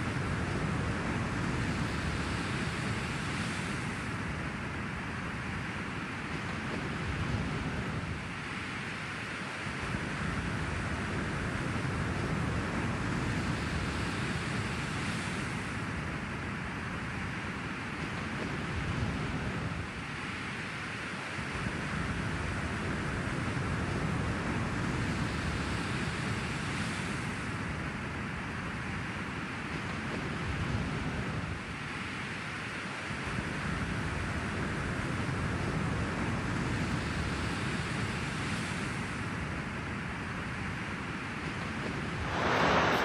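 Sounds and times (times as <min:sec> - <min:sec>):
wind: 0:00.0 - 0:43.0
ocean surf: 0:42.2 - 0:43.0.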